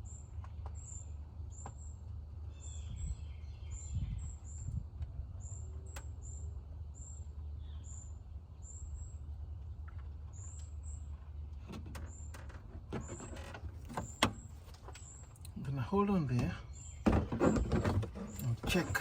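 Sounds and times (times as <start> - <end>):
bird chirping: 0.0 - 4.8, 5.4 - 19.0
steady low rumble: 0.0 - 12.9.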